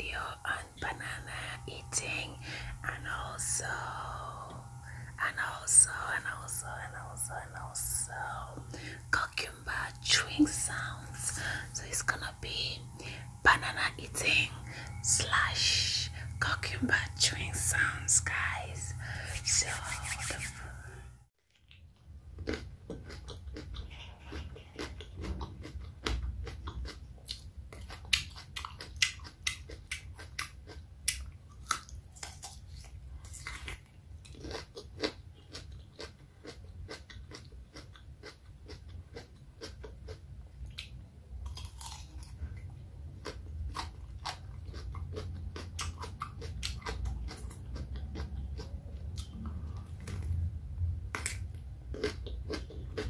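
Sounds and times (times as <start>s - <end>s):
biting and chewing cucumber: 21.5s - 53.0s.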